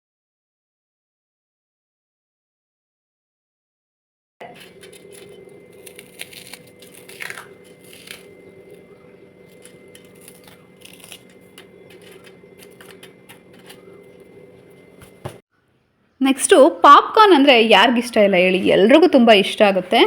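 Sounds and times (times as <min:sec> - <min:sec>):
croutons crunching: 0:04.4 - 0:15.4
steady low hum: 0:04.4 - 0:20.0.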